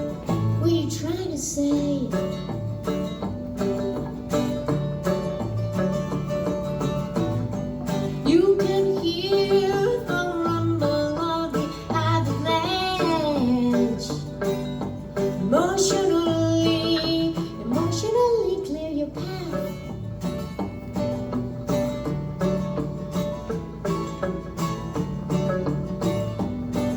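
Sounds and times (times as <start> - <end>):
person singing: 0.0 - 2.5, 8.1 - 20.0
guitar accompaniment: 0.0 - 26.9.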